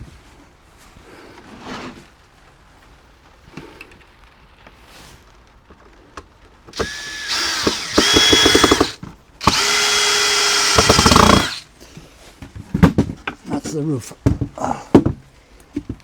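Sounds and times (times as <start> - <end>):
power drill driving screws: 6.7 - 11.6
rapid clicking: 6.8 - 11.6.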